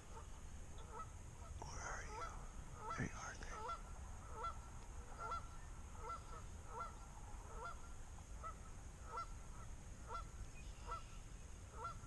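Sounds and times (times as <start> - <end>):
geese honking: 0.1 - 1.1, 3.6 - 11.1, 11.7 - 12.0.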